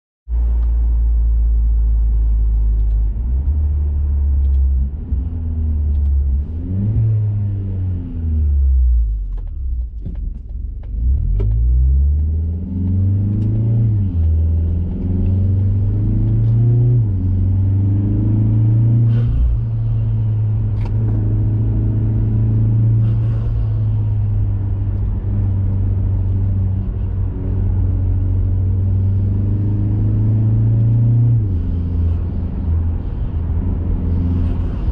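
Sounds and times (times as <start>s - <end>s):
car engine revving: 0.3s - 9.3s, 11.0s - 34.9s.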